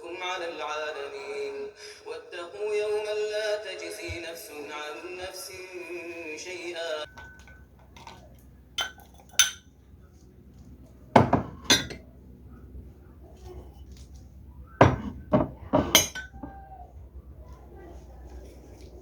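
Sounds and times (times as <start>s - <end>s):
dishes and cutlery clinking: 7.0s - 9.8s, 11.2s - 12.1s, 14.8s - 16.6s.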